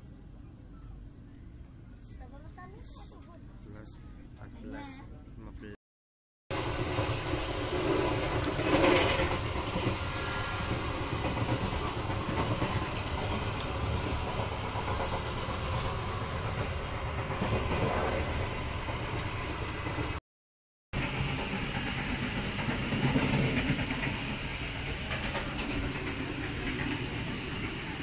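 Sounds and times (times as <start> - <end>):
train wheels rumbling on track: 6.5 - 20.2, 21.0 - 28.0.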